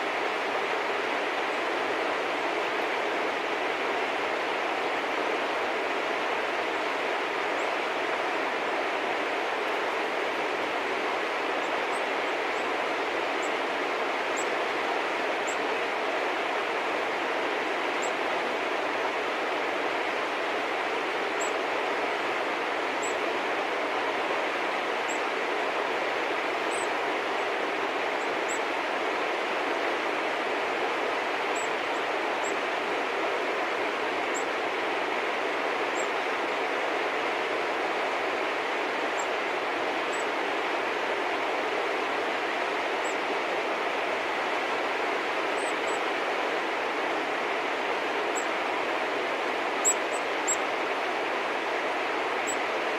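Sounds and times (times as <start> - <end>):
steady rushing background noise: 0.0 - 52.9
small birds chirping: 49.8 - 50.6.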